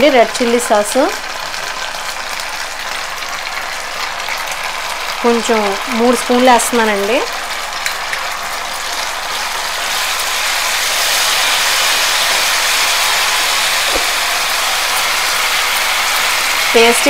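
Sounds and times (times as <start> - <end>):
sauce sizzling in hot oil: 0.0 - 17.0.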